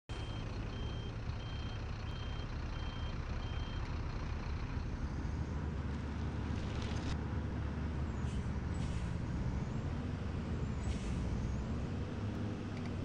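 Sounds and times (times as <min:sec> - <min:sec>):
reversing alarm beeps: 0:00.1 - 0:03.8
bus engine rumbling: 0:00.1 - 0:13.0.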